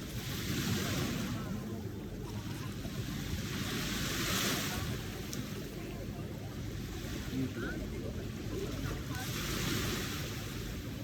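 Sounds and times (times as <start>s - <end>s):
ocean waves washing in: 6.7s - 11.0s.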